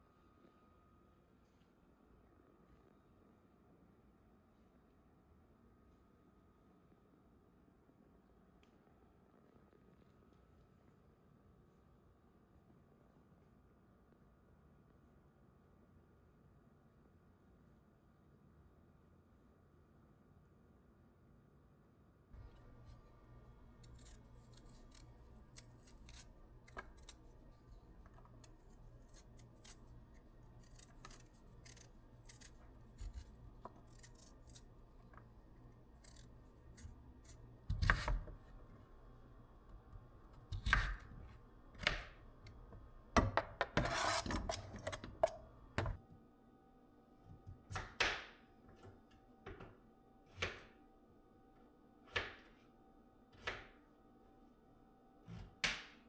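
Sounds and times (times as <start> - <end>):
sharp cutting snips: 22.4 - 38.2
low steady hum: 22.4 - 47.8.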